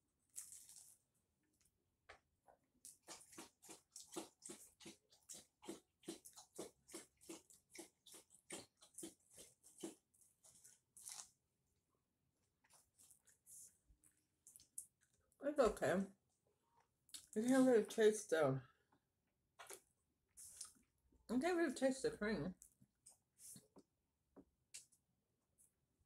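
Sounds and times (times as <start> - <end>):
person chewing pastry: 0.2 - 1.0, 2.8 - 11.4.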